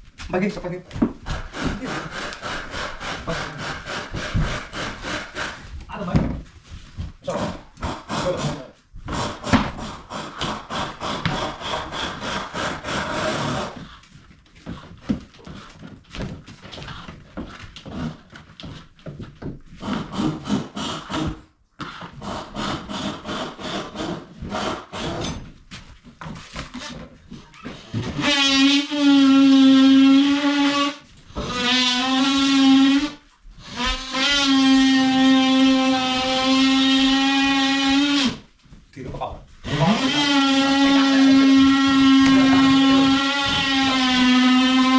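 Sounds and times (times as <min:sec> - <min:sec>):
rasping strokes on wood: 0:01.2 - 0:05.8, 0:07.2 - 0:14.0, 0:19.8 - 0:25.4, 0:39.6 - 0:44.9.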